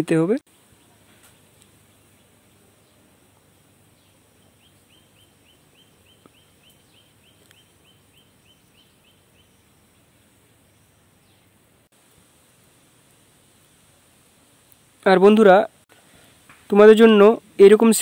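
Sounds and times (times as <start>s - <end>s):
faint background hiss: 0.0s - 18.0s
small bird chirping: 0.6s - 11.6s.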